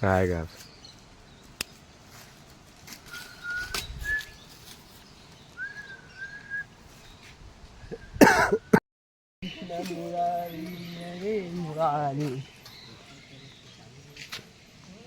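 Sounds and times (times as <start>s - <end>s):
whistled notes: 3.0s - 4.4s, 5.6s - 6.7s.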